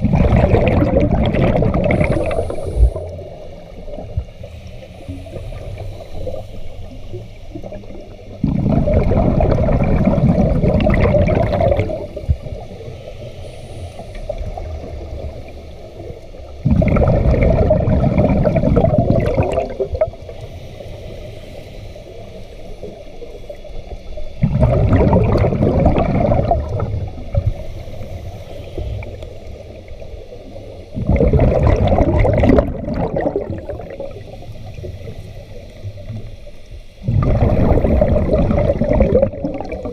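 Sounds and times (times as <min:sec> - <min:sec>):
diver exhaling bubbles underwater: 0:00.0 - 0:04.3, 0:07.6 - 0:12.7, 0:16.6 - 0:20.3, 0:24.4 - 0:27.6, 0:31.0 - 0:34.4, 0:37.0 - 0:39.9.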